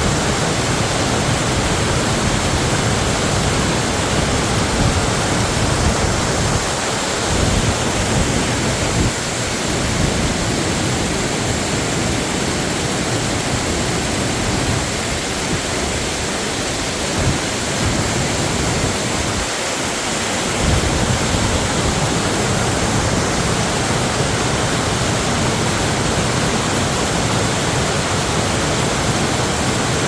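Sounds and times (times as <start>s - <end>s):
floodwater rushing: 0.0s - 30.0s.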